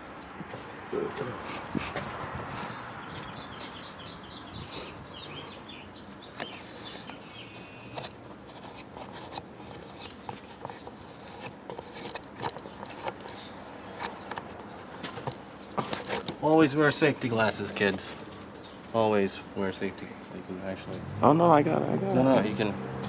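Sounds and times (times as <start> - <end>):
bird chirping: 2.5 - 8.0.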